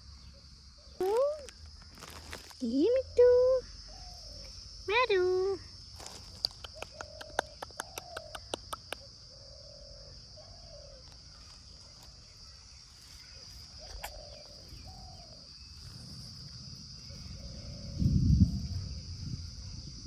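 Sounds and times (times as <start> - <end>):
sharp clicks: 6.3 - 9.0.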